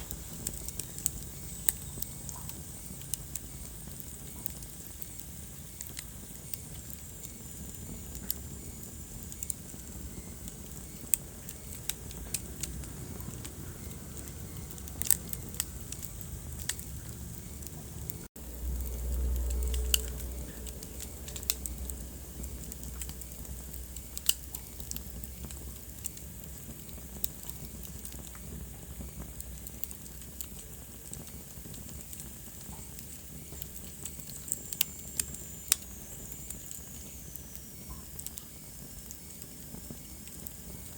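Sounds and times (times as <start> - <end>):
wood fire crackling: 0.0 - 40.9
low rumble: 12.0 - 25.6.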